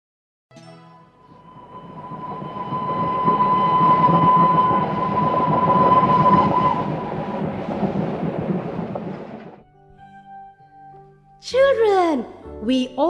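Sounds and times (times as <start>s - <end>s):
train horn: 1.2s - 9.5s
train passing: 1.2s - 9.6s.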